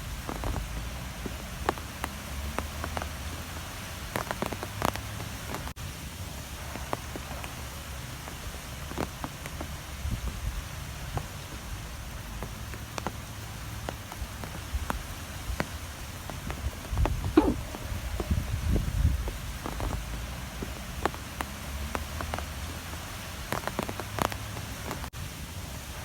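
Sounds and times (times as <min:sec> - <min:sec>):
strong wind blowing: 0:16.6 - 0:20.2.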